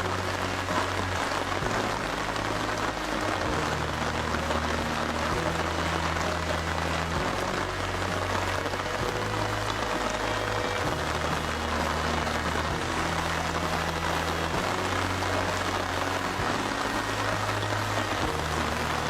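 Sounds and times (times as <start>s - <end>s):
heavy rain hissing: 0.0s - 19.0s
low background music: 0.0s - 19.0s.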